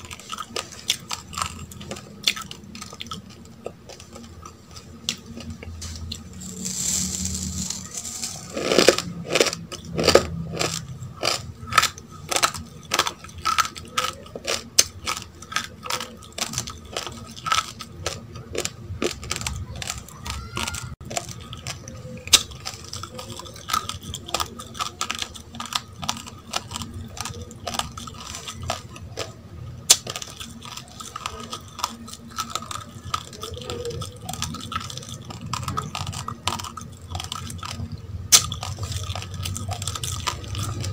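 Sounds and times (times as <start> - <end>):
crunching raw rice grains: 0.0 - 40.9.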